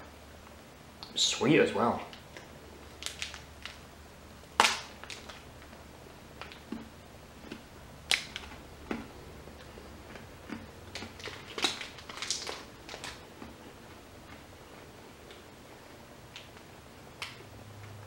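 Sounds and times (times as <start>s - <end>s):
chewing crunches: 4.5s - 17.3s.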